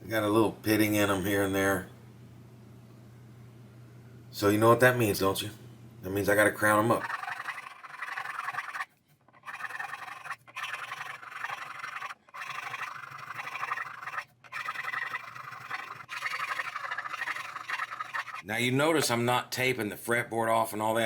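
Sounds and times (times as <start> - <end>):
file rasping on metal frets: 7.0 - 18.4.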